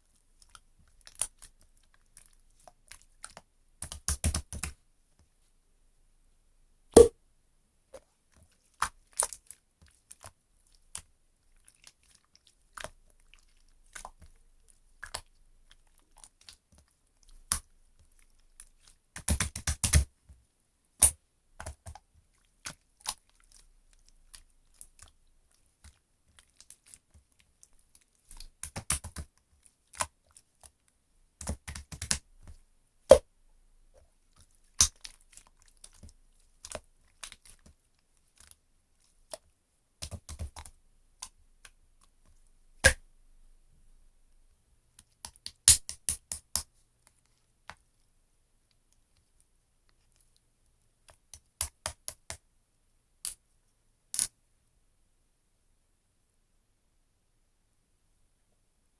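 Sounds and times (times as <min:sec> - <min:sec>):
slime squishing with sticky clicks: 0:34.4 - 0:42.2, 0:42.8 - 0:43.1.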